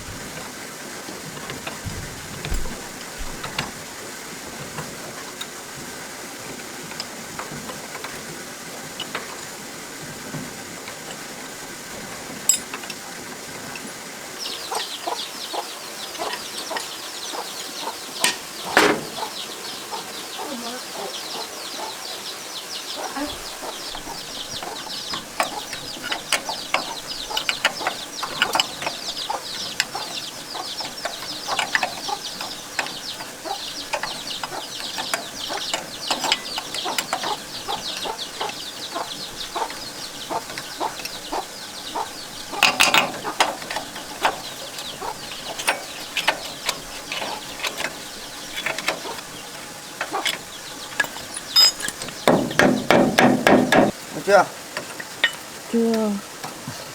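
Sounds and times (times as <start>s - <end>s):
chickens clucking: 0.0s - 56.9s
metal tools clinking: 1.4s - 3.8s, 9.0s - 9.6s, 11.9s - 13.0s, 18.2s - 19.2s, 23.2s - 54.0s, 54.8s - 55.6s
sharp clatter: 23.8s - 54.0s.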